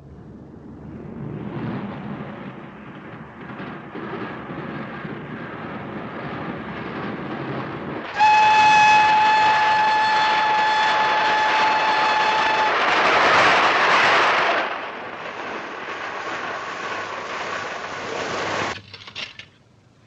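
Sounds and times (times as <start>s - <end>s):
steam locomotive running: 1.8s - 18.8s
steam whistle blast: 8.1s - 13.0s.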